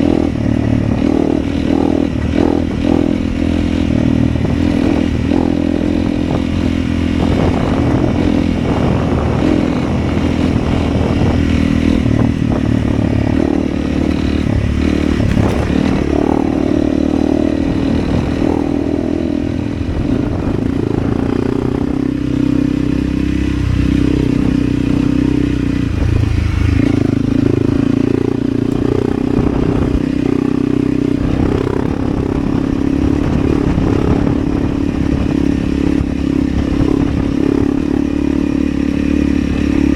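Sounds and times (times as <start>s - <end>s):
motorcycle engine running: 0.0s - 39.9s
clatter and rattling: 13.4s - 16.4s.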